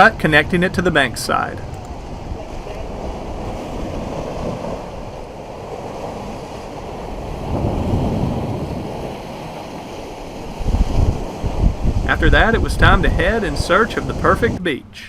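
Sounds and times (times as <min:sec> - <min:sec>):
surf rushing: 0:00.0 - 0:15.0
wind blowing on microphone: 0:00.0 - 0:15.0.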